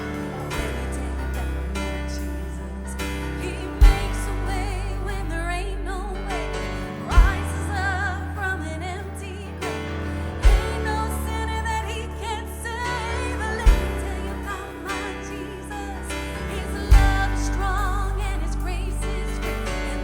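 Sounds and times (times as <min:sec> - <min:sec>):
worship band with singing: 0:00.0 - 0:20.0
heavy low drum hits: 0:03.8 - 0:04.7, 0:07.1 - 0:07.8, 0:10.4 - 0:11.1, 0:13.6 - 0:14.5, 0:16.9 - 0:18.0.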